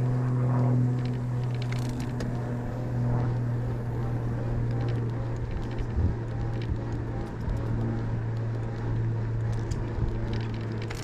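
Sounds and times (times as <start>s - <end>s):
e-bike motor hum: 0.0s - 11.0s
road and wind noise: 0.0s - 11.0s.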